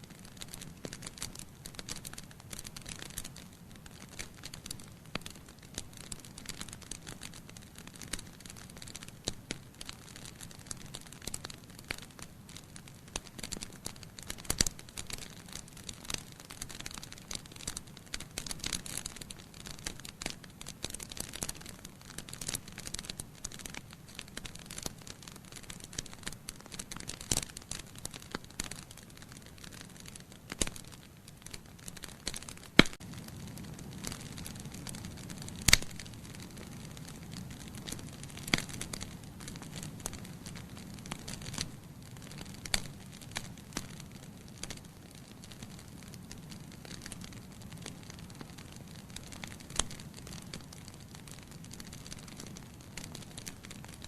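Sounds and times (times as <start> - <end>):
logs crackling in fireplace: 0.0 - 54.0
low rumble of flame: 0.0 - 54.0
loud fire pops: 30.5 - 41.7.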